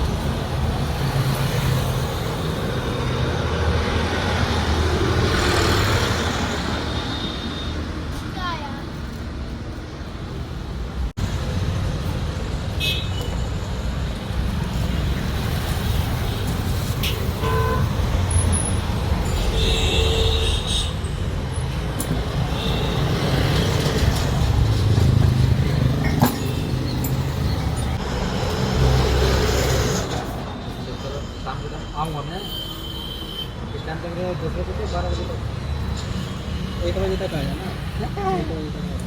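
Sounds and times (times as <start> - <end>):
traffic rumble: 0.0 - 39.0
vehicle horn toots: 17.0 - 18.0.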